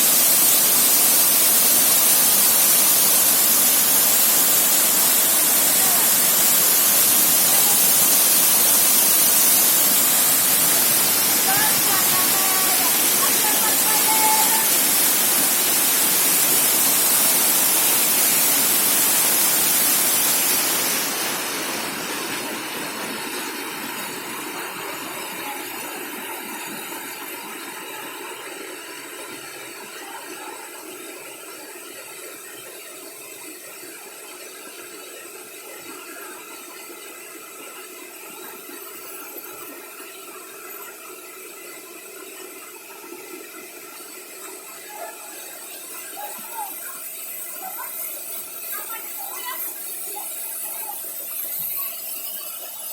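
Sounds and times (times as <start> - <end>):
waterfall rushing: 0.0 - 28.3.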